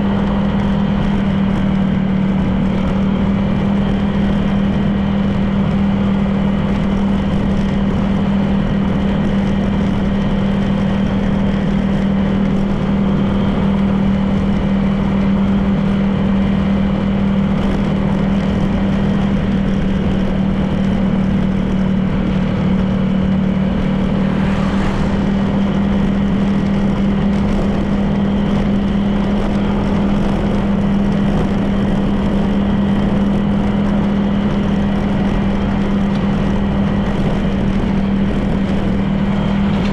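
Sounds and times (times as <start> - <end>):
road noise: 0.0 - 39.9
scooter engine running: 0.0 - 39.9.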